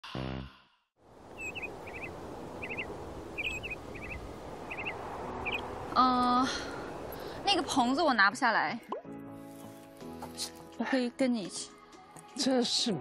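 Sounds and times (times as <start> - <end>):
outdoor ambience: 1.0 - 8.1
small bird chirping: 1.3 - 5.8.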